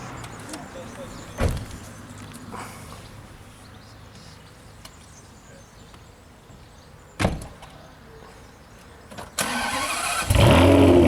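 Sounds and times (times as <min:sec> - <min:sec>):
car door shutting: 0:01.3 - 0:01.8
car engine cranking: 0:09.4 - 0:11.0.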